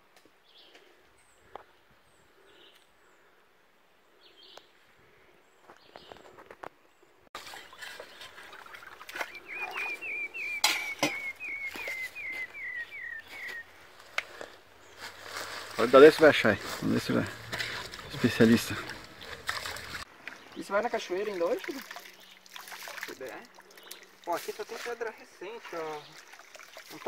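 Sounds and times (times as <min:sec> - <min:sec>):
faint high bird chirps: 0:09.1 - 0:13.8.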